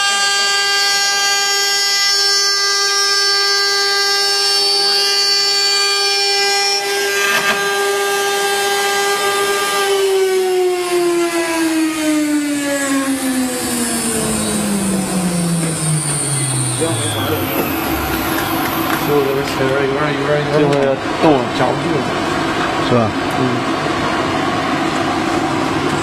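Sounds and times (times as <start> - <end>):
router spindle whine: 0.0 - 20.6.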